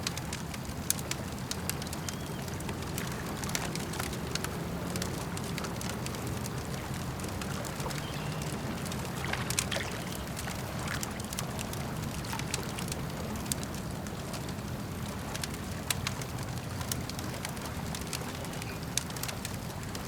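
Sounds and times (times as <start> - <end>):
campfire crackling and popping: 0.0 - 20.0
lake water washing: 0.0 - 20.0.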